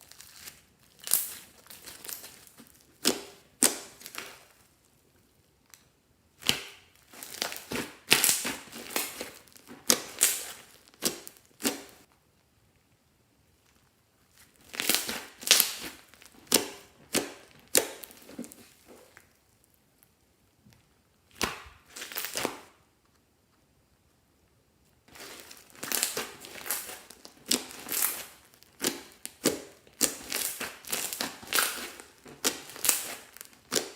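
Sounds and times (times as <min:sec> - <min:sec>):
crinkling crunching handling: 0:00.0 - 0:04.8, 0:06.4 - 0:12.1, 0:13.6 - 0:19.7, 0:25.0 - 0:33.9.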